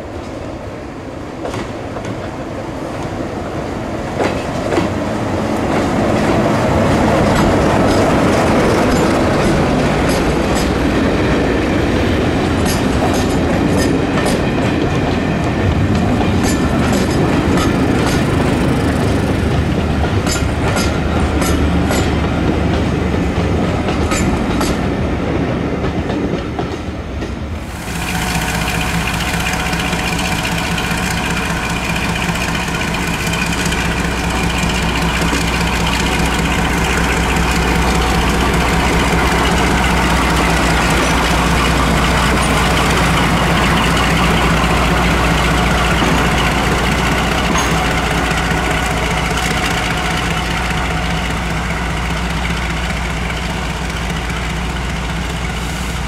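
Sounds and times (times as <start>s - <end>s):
train wheels clicking over rail joints: 1.4s - 56.0s
diesel engines running: 27.7s - 56.0s.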